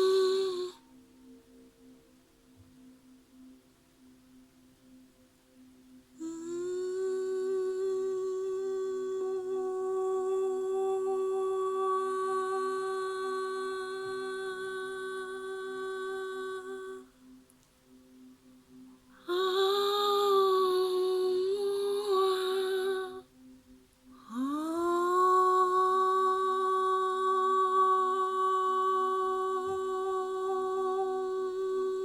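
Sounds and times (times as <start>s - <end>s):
person humming: 0.0s - 1.0s, 6.2s - 17.2s, 19.1s - 23.3s, 24.1s - 32.0s
faint steady ringing tone: 0.0s - 32.0s.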